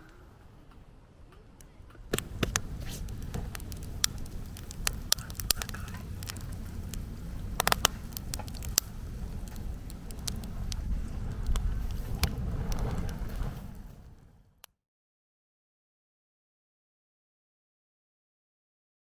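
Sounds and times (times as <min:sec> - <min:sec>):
low rumble of flames: 0:00.5 - 0:14.7
campfire crackling and popping: 0:02.1 - 0:14.5.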